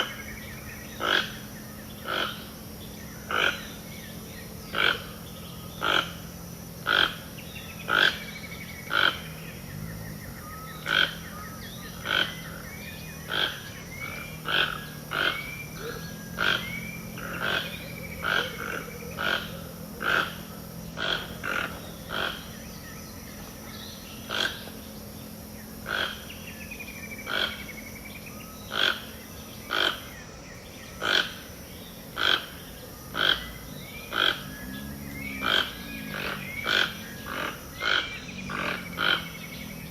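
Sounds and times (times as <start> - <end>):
loud animal call: 0.0 - 22.8, 24.2 - 24.9, 25.8 - 27.9, 28.6 - 39.9
birds singing whistles: 0.0 - 39.9
low steady drone: 0.0 - 39.9.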